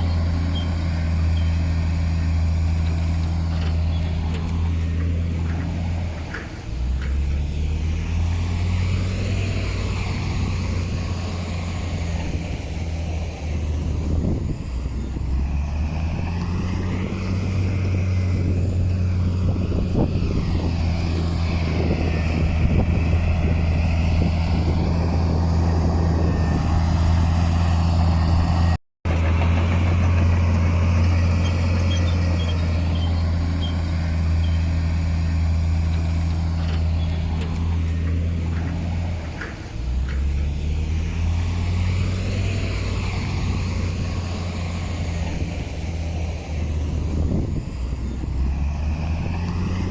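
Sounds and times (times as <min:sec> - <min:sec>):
heavy diesel engine droning: 0:00.0 - 0:49.9.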